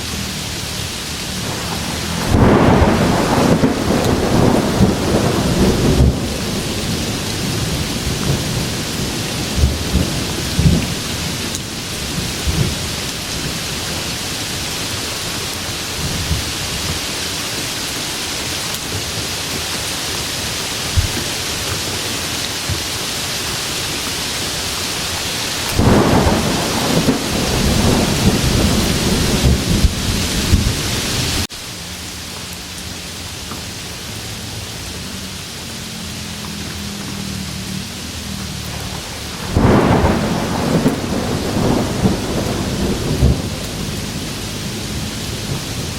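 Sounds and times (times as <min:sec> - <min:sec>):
steady rain falling: 0:00.0 - 0:45.9
rolling thunder: 0:01.2 - 0:17.0, 0:24.9 - 0:31.5, 0:38.5 - 0:45.9.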